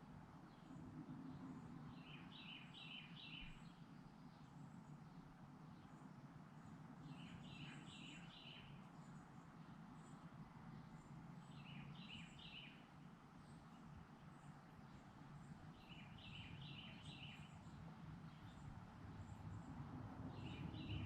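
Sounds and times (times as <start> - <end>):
bird chirping: 2.0 - 3.8, 7.1 - 9.2, 11.4 - 12.9, 14.4 - 19.5, 20.3 - 21.0
low steady rumble: 13.1 - 21.0.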